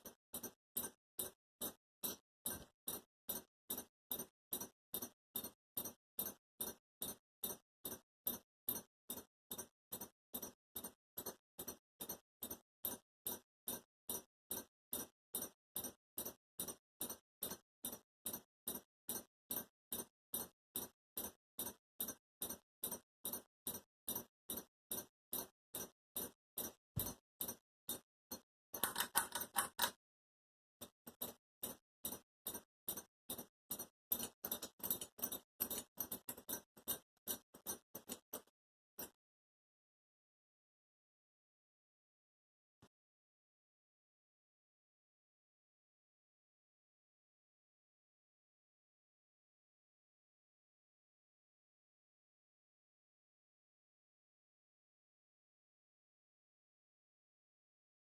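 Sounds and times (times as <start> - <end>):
ceiling fan ticking: 0.0 - 29.9, 30.8 - 38.5.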